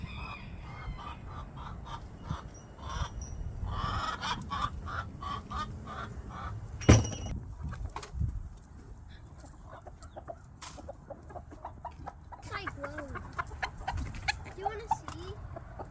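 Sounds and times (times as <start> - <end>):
chickens clucking: 0.0 - 6.8, 7.5 - 15.9
loud thump: 6.8 - 7.3.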